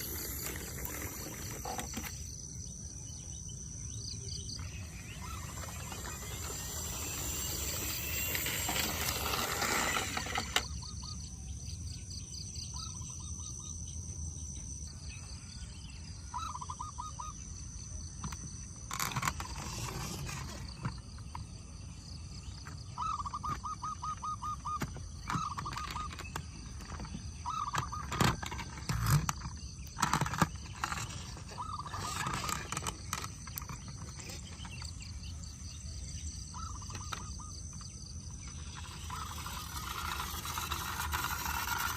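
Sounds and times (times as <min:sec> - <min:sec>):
insects buzzing: 0:00.0 - 0:41.9
bird trilled calls: 0:03.9 - 0:11.3, 0:12.4 - 0:13.8, 0:16.2 - 0:17.8, 0:22.4 - 0:41.9.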